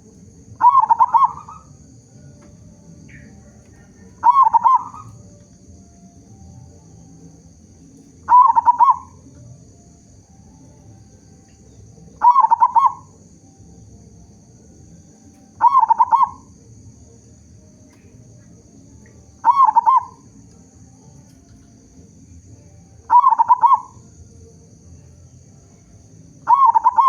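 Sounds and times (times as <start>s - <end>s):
dove cooing: 0.0s - 5.6s, 7.8s - 9.7s, 11.4s - 13.5s, 15.2s - 16.6s, 19.2s - 20.4s, 23.0s - 24.2s, 26.5s - 27.0s.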